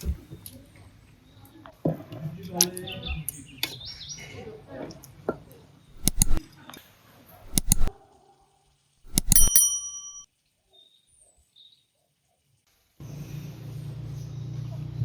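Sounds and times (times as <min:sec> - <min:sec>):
ringing metallic strike: 0:09.1 - 0:10.2.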